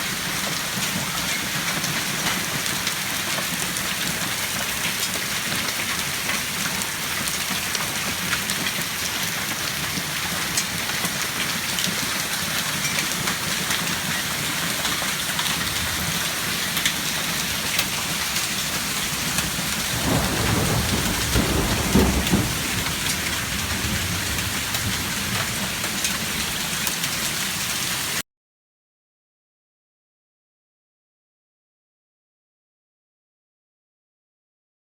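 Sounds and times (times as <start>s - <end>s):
hailstones ticking: 0.0s - 27.4s
heavy rain and hail: 0.0s - 28.2s
thunder rumble: 17.9s - 26.6s.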